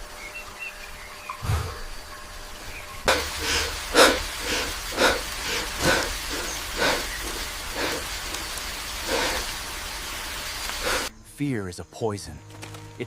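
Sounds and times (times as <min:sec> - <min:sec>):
sharp breathy hisses: 0:01.4 - 0:01.9, 0:03.1 - 0:09.7, 0:10.6 - 0:11.1.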